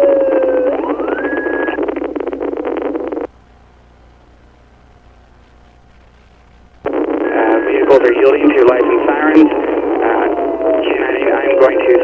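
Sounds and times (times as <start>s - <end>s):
police radio carrier noise: 0.0s - 3.3s, 6.9s - 12.0s
faint steady hum: 0.0s - 12.0s.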